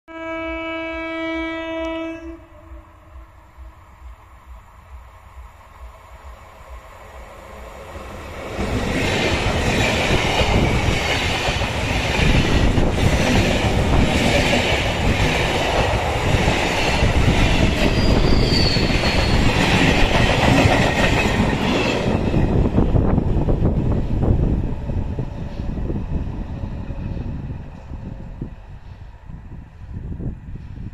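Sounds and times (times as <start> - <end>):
train passing: 0.1 - 30.9
high wheel squeal: 17.8 - 19.5.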